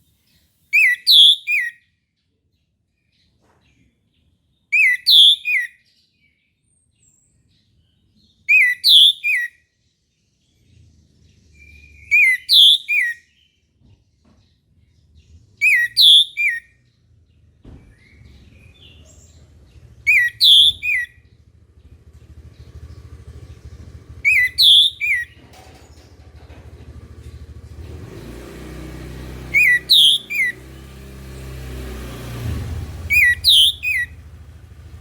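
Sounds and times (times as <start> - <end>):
thrush whistled song: 0.7 - 1.8, 4.8 - 5.8, 8.5 - 9.6, 11.5 - 13.4, 15.6 - 16.8, 20.1 - 21.3, 24.2 - 25.4, 27.9 - 31.2, 32.3 - 34.2.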